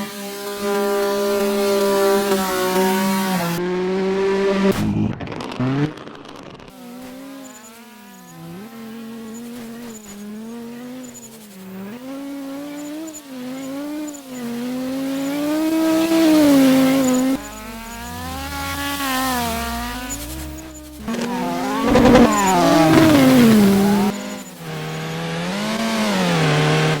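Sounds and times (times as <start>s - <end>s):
race car engines revving: 0.0s - 27.0s
race car passing by: 6.8s - 27.0s.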